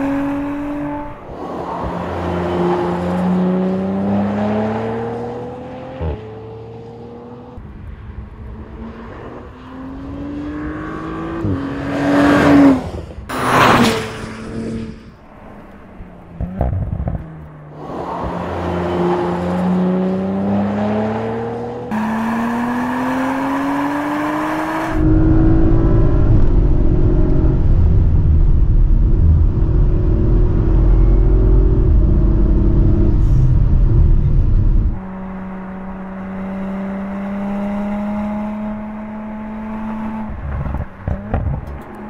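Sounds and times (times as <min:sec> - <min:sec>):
car engine accelerating hard: 0:17.8 - 0:42.0
low wind rumble on microphone: 0:24.9 - 0:35.0, 0:40.1 - 0:41.9.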